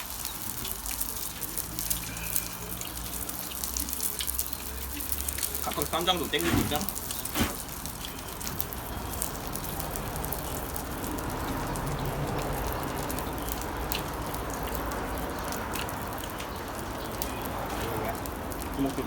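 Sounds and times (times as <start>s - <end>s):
fat crackling and popping: 0.0s - 19.0s
meat sizzling on a grill: 0.0s - 19.0s.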